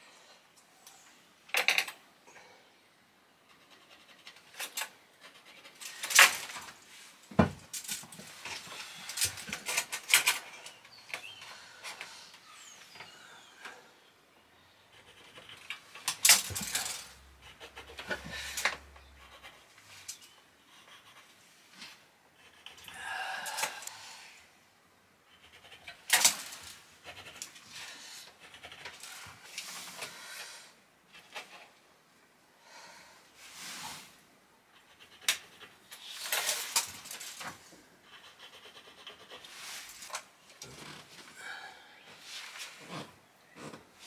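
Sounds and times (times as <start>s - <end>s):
rustles and scrapes: 3.4s - 13.9s, 14.9s - 22.9s, 25.4s - 31.8s, 33.3s - 38.3s, 38.9s - 41.4s, 42.0s - 44.0s
person breathing: 11.2s - 14.1s, 22.8s - 24.6s, 29.8s - 30.8s, 32.5s - 34.2s, 41.3s - 42.5s.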